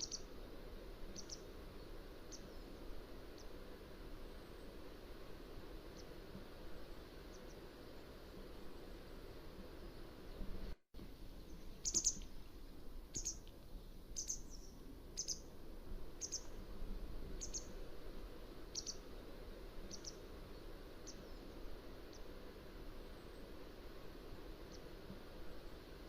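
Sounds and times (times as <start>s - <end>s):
bird high thin calls: 0.0s - 0.3s, 11.8s - 12.3s, 13.1s - 13.4s, 14.2s - 15.5s, 16.2s - 16.5s, 17.4s - 17.8s, 18.7s - 19.0s.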